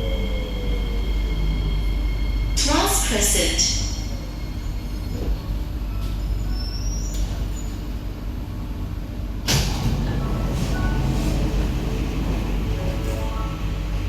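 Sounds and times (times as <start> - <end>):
train equipment humming: 8.1 - 14.0.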